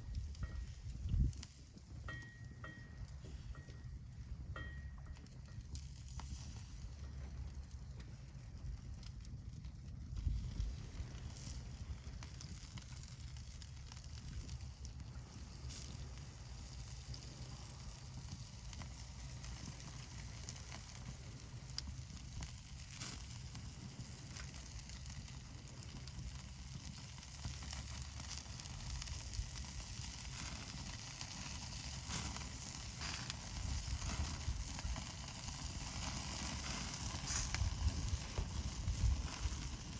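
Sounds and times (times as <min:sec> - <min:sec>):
wood fire crackling: 0:00.0 - 0:39.9
meat sizzling on a grill: 0:10.2 - 0:39.9.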